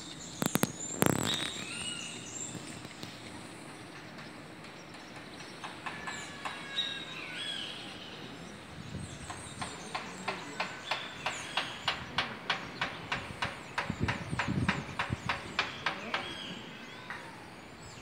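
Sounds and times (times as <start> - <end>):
birds chirping: 0.0 - 18.0
outdoor background noise: 0.0 - 18.0
sharp clicks: 0.2 - 3.3.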